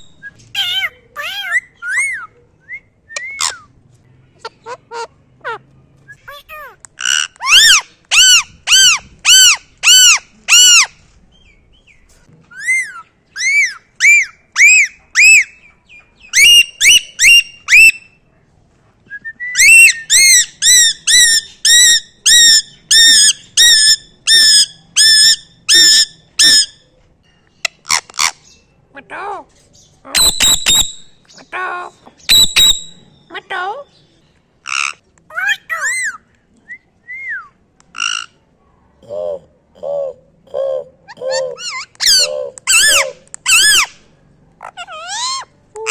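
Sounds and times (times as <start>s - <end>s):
parrot calling: 0.0s - 2.4s, 6.2s - 11.0s, 12.6s - 15.6s, 19.6s - 26.7s, 30.1s - 33.8s, 34.6s - 36.2s, 37.9s - 38.4s, 40.8s - 44.0s, 44.6s - 45.9s.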